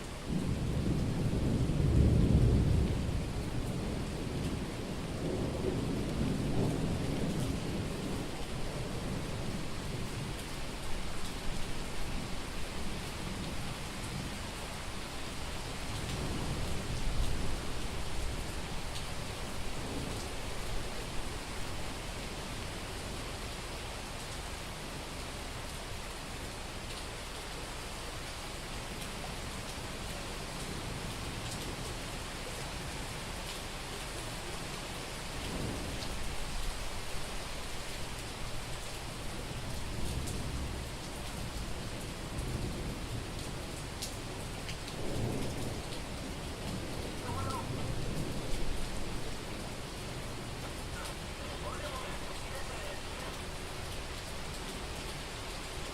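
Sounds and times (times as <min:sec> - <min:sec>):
heavy rain falling: 0:00.0 - 0:55.9
low rumble of thunder: 0:00.1 - 0:23.4, 0:34.2 - 0:55.9
faint raindrop ticks: 0:26.8 - 0:27.1, 0:28.9 - 0:32.6, 0:33.4 - 0:55.9.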